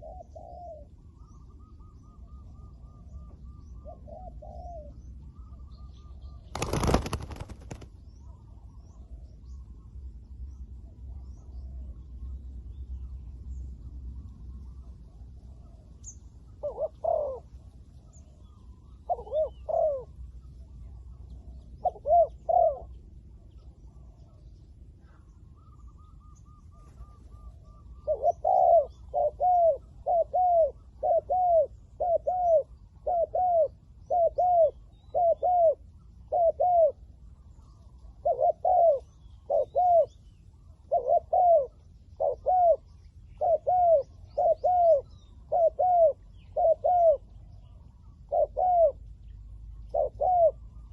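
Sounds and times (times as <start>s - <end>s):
doves cooing: 0.0s - 5.8s, 6.4s - 8.4s, 15.5s - 20.2s, 21.3s - 23.0s, 25.0s - 49.0s, 49.8s - 50.9s.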